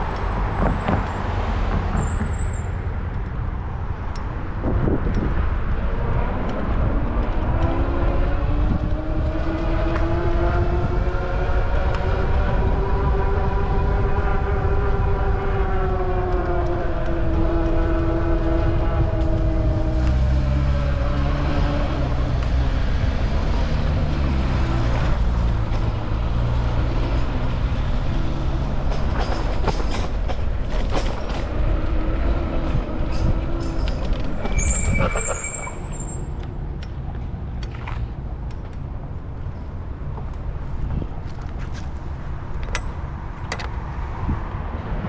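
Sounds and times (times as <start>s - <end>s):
street traffic rumble: 0.0s - 45.0s
high squeal: 2.0s - 2.8s, 33.7s - 36.4s
large vehicle motor whine: 5.8s - 29.0s.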